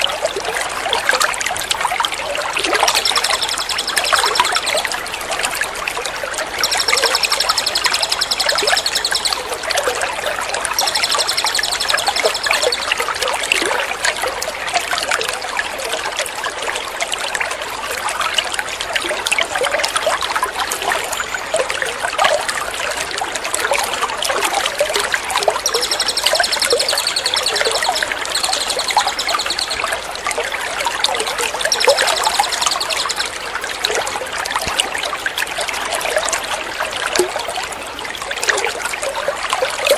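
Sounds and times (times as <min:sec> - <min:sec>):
trickling splashing water: 0:00.0 - 0:14.2, 0:18.0 - 0:39.9
songbird trilling: 0:02.8 - 0:05.1, 0:06.4 - 0:09.6, 0:10.7 - 0:13.0, 0:25.6 - 0:30.0, 0:31.6 - 0:33.5.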